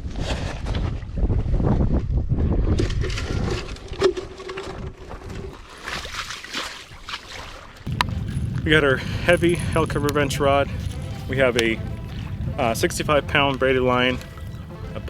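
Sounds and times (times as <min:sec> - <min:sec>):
water sloshing and splashing: 0:02.9 - 0:15.0
low rumble of handling: 0:07.9 - 0:15.0.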